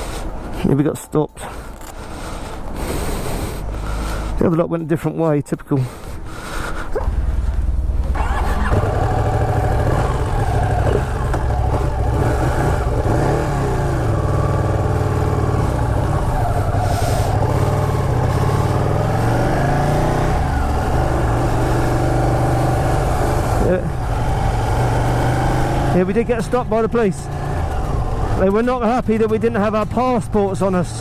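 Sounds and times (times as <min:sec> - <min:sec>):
motorcycle engine running: 0:07.0 - 0:31.0.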